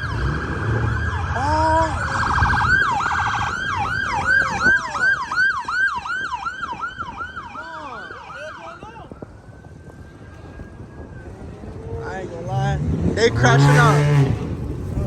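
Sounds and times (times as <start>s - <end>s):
police siren yelping: 0.0s - 11.9s.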